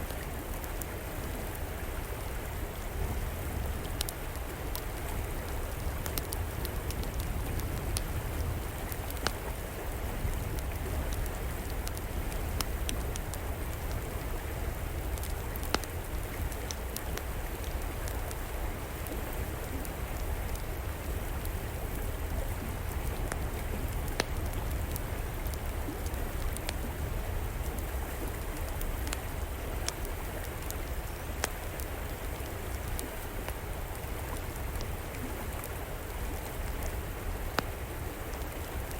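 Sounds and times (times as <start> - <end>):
river flowing: 0.0 - 38.9
wood fire crackling: 3.3 - 38.9.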